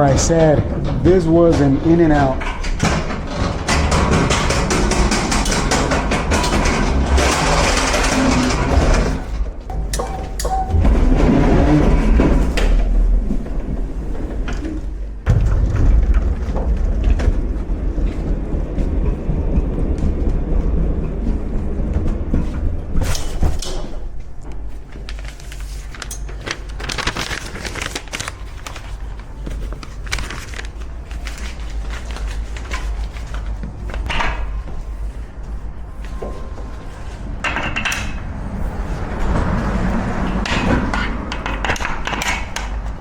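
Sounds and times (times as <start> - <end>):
metal clanks and rattles: 0.0 - 24.7, 36.1 - 43.0
low motor hum: 5.6 - 23.1.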